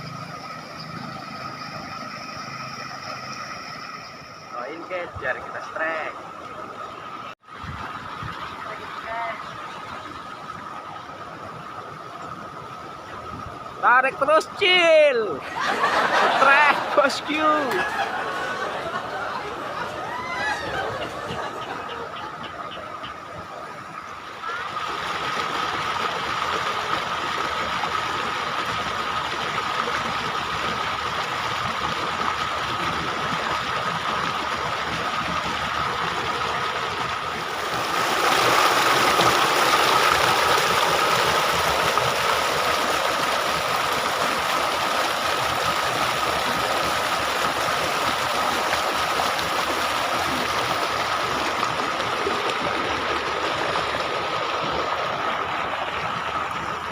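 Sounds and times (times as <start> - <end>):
thin high whine: 0.0 - 4.8
water rushing in canal: 0.0 - 56.9.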